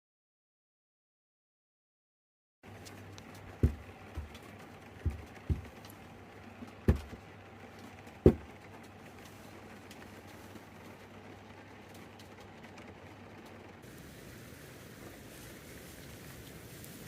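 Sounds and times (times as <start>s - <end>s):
steady low hum: 2.6s - 17.0s
dull thumps: 3.4s - 4.4s, 5.0s - 5.9s, 6.8s - 7.2s, 8.2s - 8.5s.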